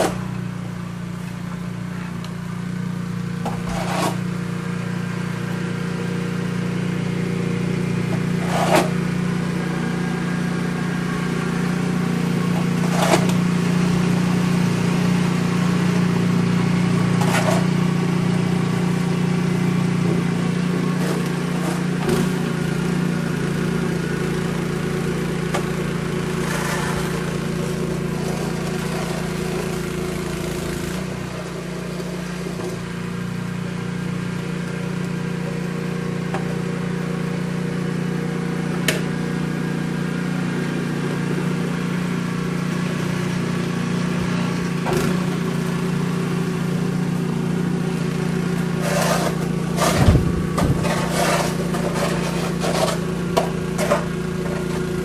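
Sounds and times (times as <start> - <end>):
motor humming: 24.5 - 30.2, 34.6 - 55.0.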